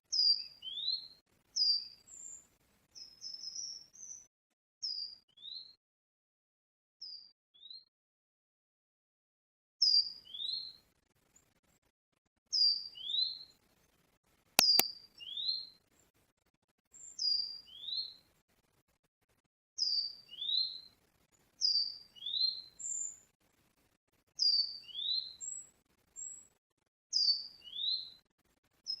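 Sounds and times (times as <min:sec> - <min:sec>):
sharp clicks: 0:14.6 - 0:14.8.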